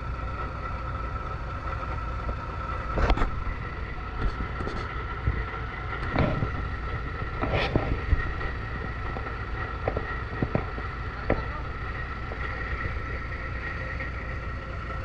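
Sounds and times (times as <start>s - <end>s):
constant whine: 0.0s - 15.0s
truck engine running: 0.0s - 15.0s
knocks and clatters: 4.2s - 14.1s.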